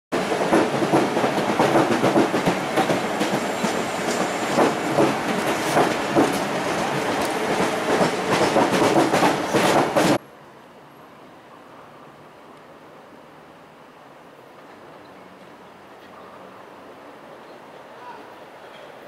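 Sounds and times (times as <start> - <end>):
train rolling noise: 0.1 - 10.7
train wheels clattering over joints: 0.2 - 10.2.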